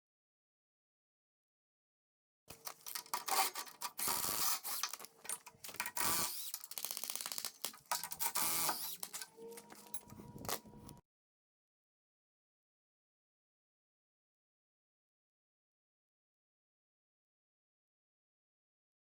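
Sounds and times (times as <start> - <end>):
metal tools clattering and scraping: 2.5 - 11.0.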